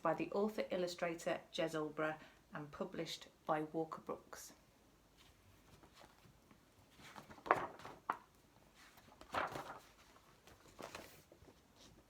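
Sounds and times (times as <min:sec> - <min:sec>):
book pages rustling: 0:05.2 - 0:12.0.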